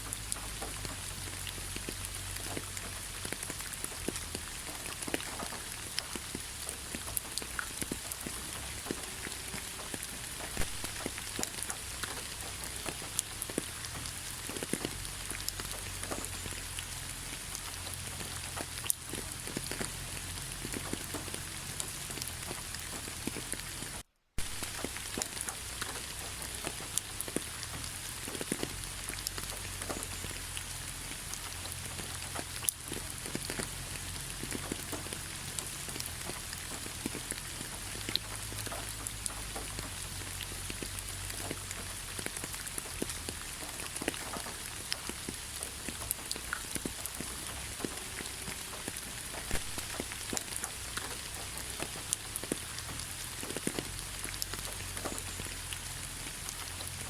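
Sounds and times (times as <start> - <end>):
raindrops ticking: 0.0 - 57.0
steady rain hiss: 0.0 - 57.0.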